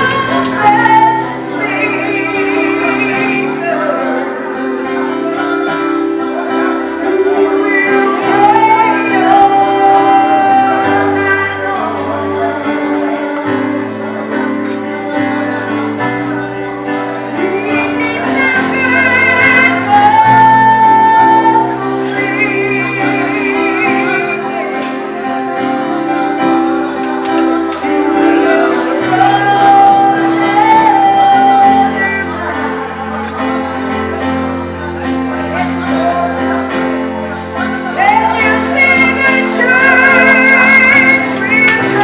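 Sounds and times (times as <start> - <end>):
woman singing gospel song: 0.0 - 4.4, 7.0 - 13.8, 17.4 - 25.1, 27.8 - 32.9, 37.9 - 42.0
held accompaniment chords: 0.0 - 42.0.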